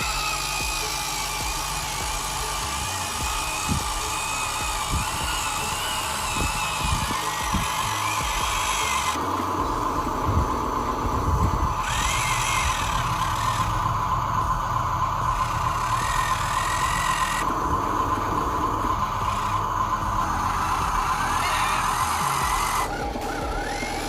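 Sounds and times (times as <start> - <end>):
high motor whine: 0.0 - 24.0
toy electric motors whirring: 0.0 - 24.0.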